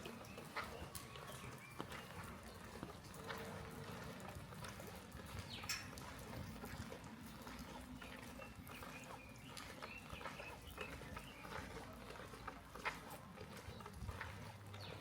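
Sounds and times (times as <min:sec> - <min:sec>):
drips and ticks: 0:00.0 - 0:15.0.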